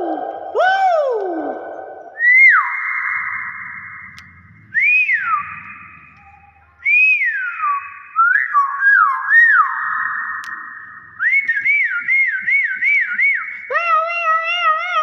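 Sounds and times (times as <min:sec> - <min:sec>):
myna bird whistling: 0:02.1 - 0:13.7.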